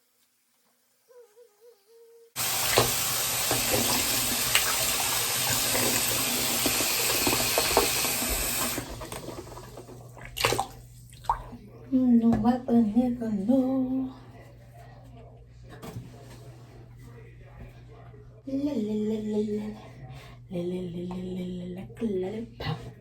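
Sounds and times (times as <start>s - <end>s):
woman humming: 1.1s - 2.4s, 18.5s - 19.8s, 20.5s - 22.9s
water running into bathtub: 2.4s - 11.6s.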